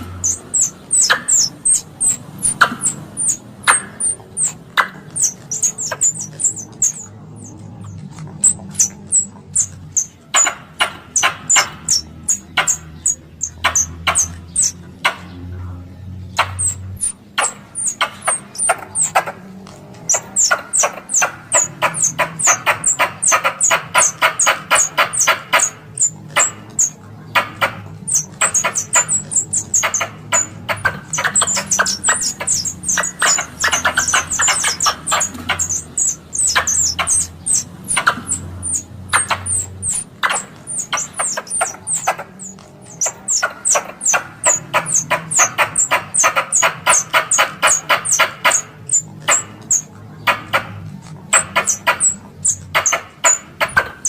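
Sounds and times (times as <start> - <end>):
squirrel chattering calls: 0.0 - 54.0.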